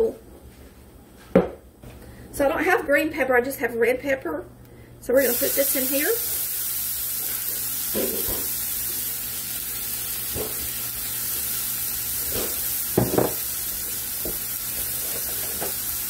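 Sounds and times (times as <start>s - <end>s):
vegetables sizzling in oil: 5.1s - 16.0s.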